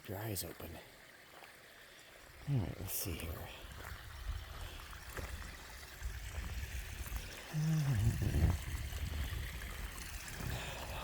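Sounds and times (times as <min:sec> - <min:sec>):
water trickling: 0:00.0 - 0:11.0.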